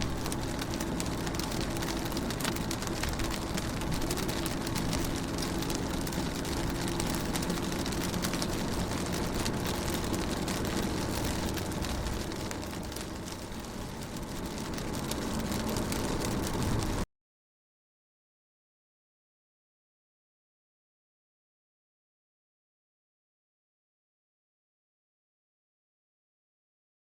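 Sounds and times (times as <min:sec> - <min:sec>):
low steady hum: 0:00.0 - 0:17.0
rain pattering on car window: 0:00.0 - 0:17.1.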